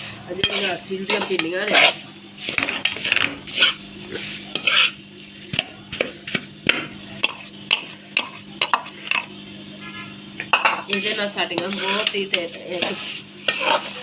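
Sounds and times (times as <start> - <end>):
metal spoon scraping a pan: 0.4 - 5.1, 10.9 - 14.0.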